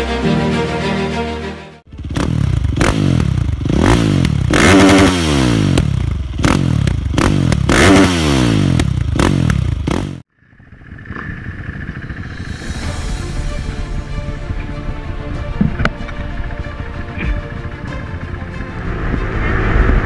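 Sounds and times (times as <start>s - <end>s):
dirt bike engine revving: 1.9s - 13.0s.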